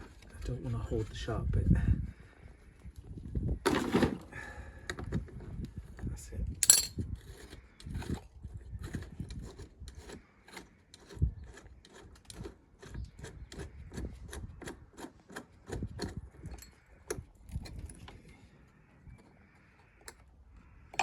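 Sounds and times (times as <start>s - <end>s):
hand tool scraping and knocking metal: 8.8s - 18.1s.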